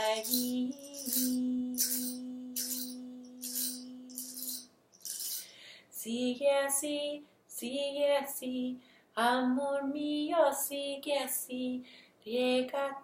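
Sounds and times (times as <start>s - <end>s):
tambourine or shaker rattling: 0.0s - 5.6s.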